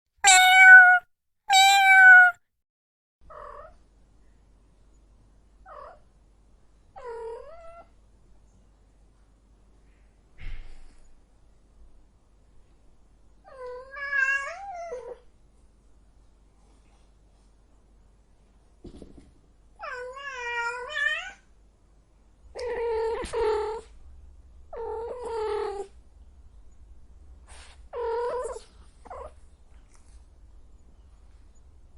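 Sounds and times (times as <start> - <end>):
cat meowing: 0.2 - 2.4.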